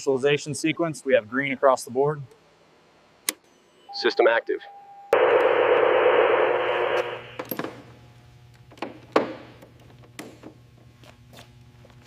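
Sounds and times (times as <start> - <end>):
low electrical hum: 0.0 - 12.0
loud static hiss: 5.2 - 7.5.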